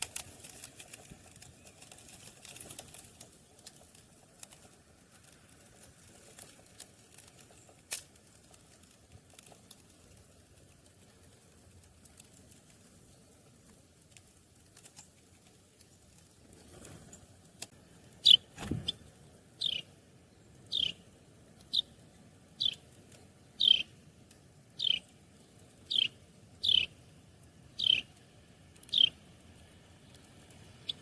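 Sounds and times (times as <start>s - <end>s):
small bird chirping: 18.1s - 24.0s, 24.7s - 27.0s, 27.7s - 31.0s.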